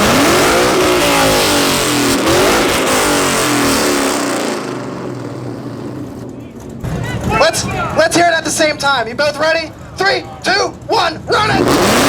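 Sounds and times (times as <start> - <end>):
engine revving through loud exhaust: 0.0 - 6.2, 11.4 - 12.0.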